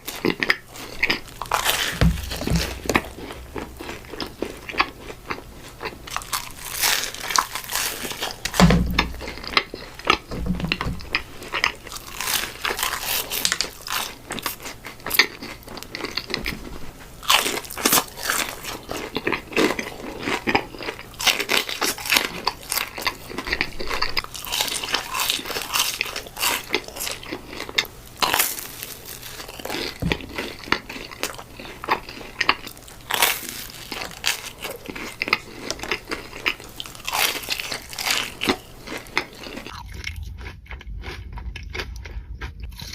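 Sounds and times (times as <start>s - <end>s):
person crunching and chewing food: 0.0s - 42.9s
low thump: 1.9s - 4.2s, 8.5s - 9.4s, 10.3s - 11.4s.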